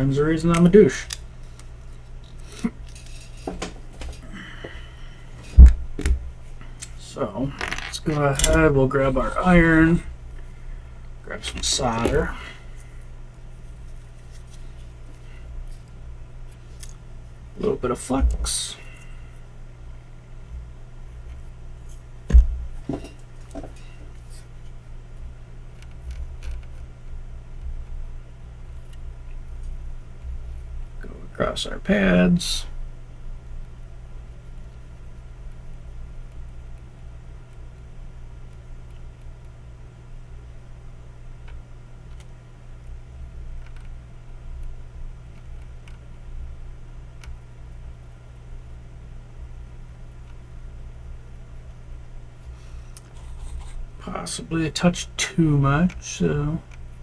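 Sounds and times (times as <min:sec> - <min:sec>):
low electrical hum: 0:00.0 - 0:57.0
hand tools clicking and knocking: 0:02.4 - 0:04.8
heavier knocks: 0:05.4 - 0:06.4, 0:22.3 - 0:23.8.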